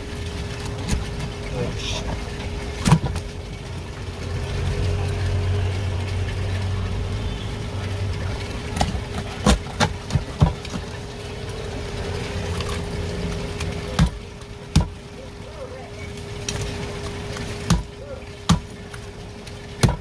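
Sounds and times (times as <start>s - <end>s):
low machine hum: 0.0s - 20.0s
sharp knocks: 14.0s - 15.0s, 17.7s - 17.9s, 18.5s - 18.7s, 19.8s - 20.0s.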